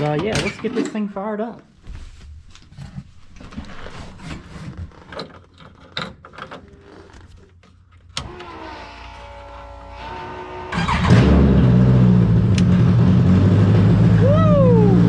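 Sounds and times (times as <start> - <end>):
electric motor whirring: 8.2 - 10.8.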